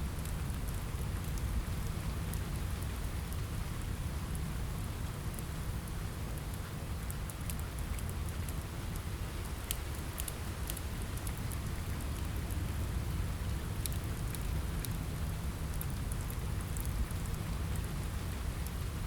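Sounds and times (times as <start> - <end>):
steady rain: 0.0 - 19.0
wood fire crackling and popping: 7.1 - 12.6, 13.8 - 17.9.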